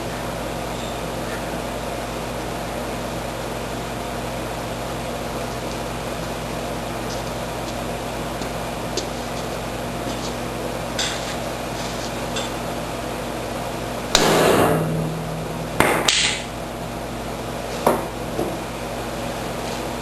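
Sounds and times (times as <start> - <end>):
hammer blows on steel: 14.2 - 16.5.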